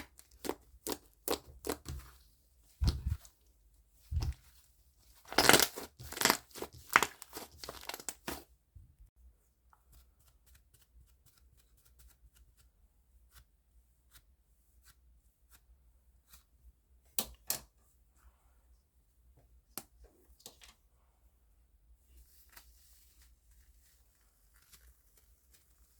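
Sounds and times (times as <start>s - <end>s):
slime bubbles crackling and popping: 5.2s - 8.4s.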